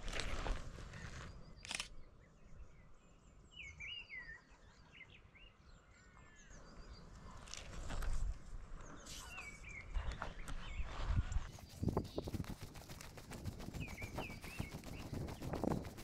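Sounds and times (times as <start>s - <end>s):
birds chirping: 8.7s - 16.0s.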